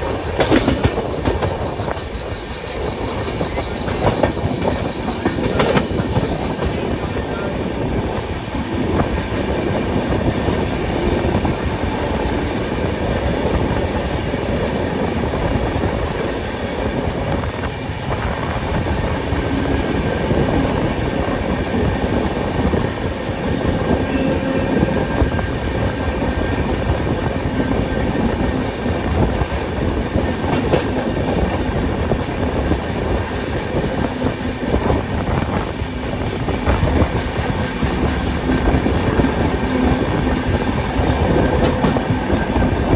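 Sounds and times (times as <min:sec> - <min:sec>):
faint high squeal: 0:00.0 - 0:07.6
train wheels on rails: 0:00.0 - 0:42.9.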